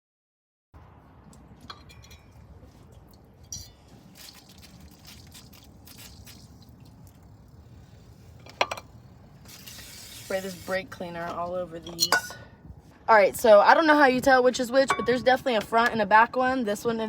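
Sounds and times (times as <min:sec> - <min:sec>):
metal brake parts clinking: 0:01.7 - 0:02.4, 0:11.8 - 0:12.5.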